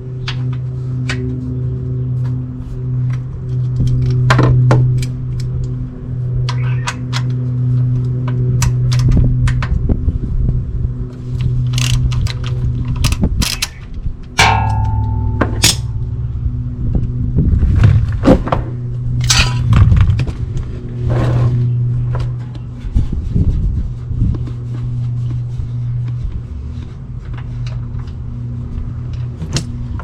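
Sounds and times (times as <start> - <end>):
steady low hum: 0.0 - 30.0
metal clinks and knocks: 14.4 - 16.2, 19.2 - 19.8.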